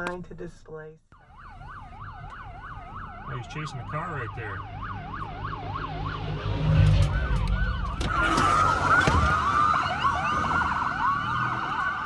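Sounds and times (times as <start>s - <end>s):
emergency vehicle sirens wailing: 1.2s - 12.0s
low vehicle rumble: 4.4s - 12.0s.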